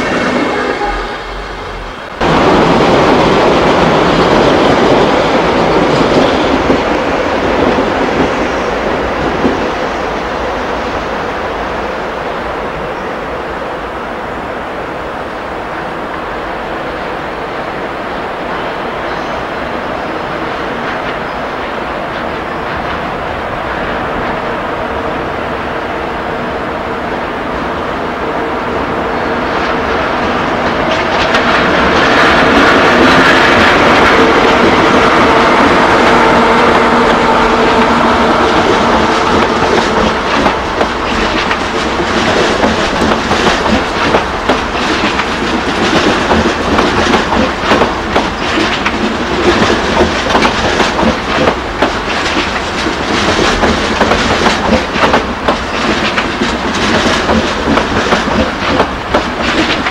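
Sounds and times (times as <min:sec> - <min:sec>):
train power car humming: 0:00.0 - 0:59.9
wheels clicking over rail joints: 0:38.5 - 0:59.9.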